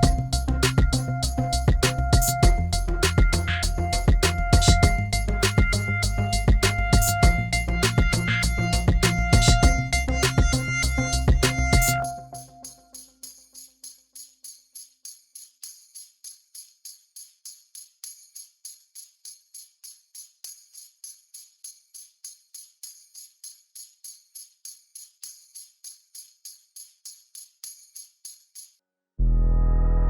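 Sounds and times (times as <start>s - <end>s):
held low note: 0.0s - 12.6s, 29.2s - 30.0s
instrumental background music: 0.0s - 12.8s
jingle percussion strokes: 0.0s - 28.7s.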